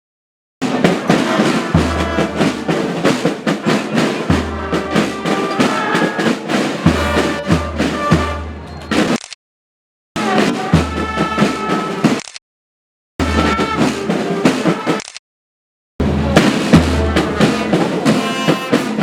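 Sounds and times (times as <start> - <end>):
brass instruments playing: 0.6 - 8.6, 10.2 - 12.1, 13.2 - 15.0, 16.0 - 19.0
band drumming: 0.6 - 9.2, 10.2 - 12.2, 13.2 - 15.0, 16.0 - 19.0.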